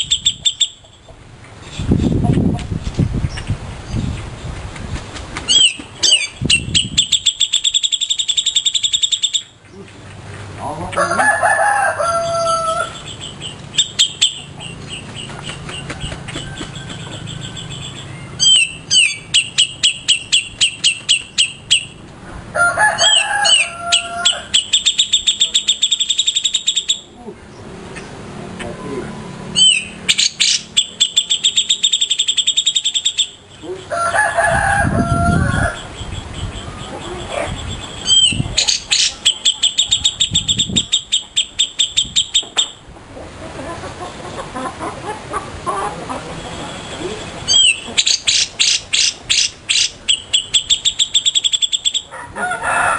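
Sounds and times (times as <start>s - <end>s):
songbird sharp high chirps: 0.0s - 2.2s, 5.5s - 9.8s, 12.9s - 22.0s, 24.5s - 28.1s, 29.6s - 33.8s, 35.9s - 42.8s, 46.7s - 52.1s
rooster crowing: 11.0s - 13.0s, 22.5s - 24.6s, 33.9s - 35.9s, 52.1s - 52.9s
lower drawn-out bird call: 28.7s - 42.8s, 46.3s - 52.2s.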